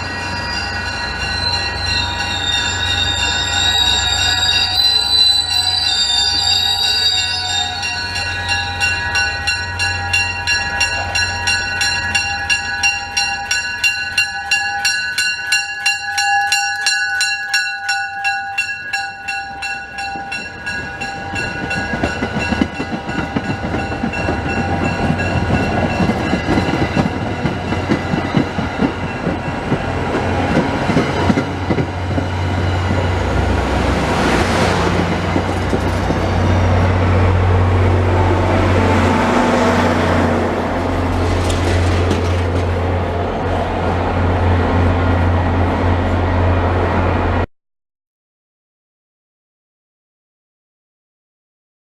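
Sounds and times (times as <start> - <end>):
high wavering squeal: 0.0 - 15.2
fast even ringing tones: 0.0 - 28.4
train rumble: 0.0 - 47.5.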